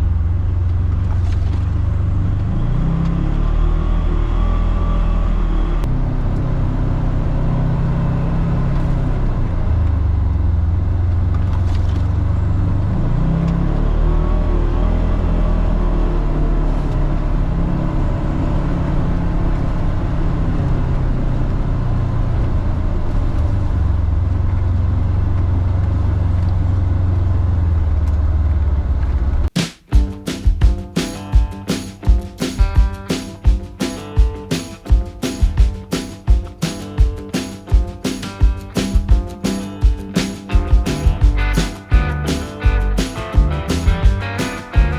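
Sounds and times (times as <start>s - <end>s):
music with drum beat: 29.6s - 44.9s
off-road vehicle engine running: 39.0s - 44.9s.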